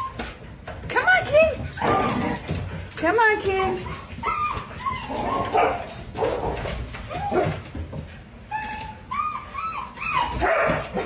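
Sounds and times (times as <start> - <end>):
dog whining: 1.7 - 2.6, 3.8 - 7.7, 8.4 - 11.0.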